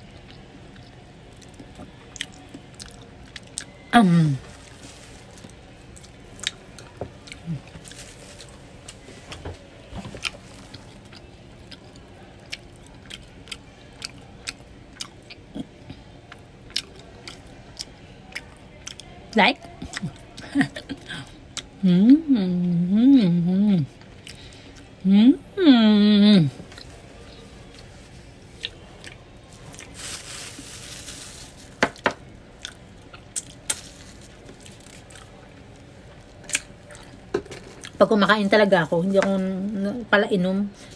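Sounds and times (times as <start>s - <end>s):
chewing with wet mouth smacks: 0.1s - 3.8s, 10.2s - 20.5s, 28.6s - 29.9s, 32.6s - 33.8s
wet chewing: 26.7s - 31.1s, 32.5s - 38.0s.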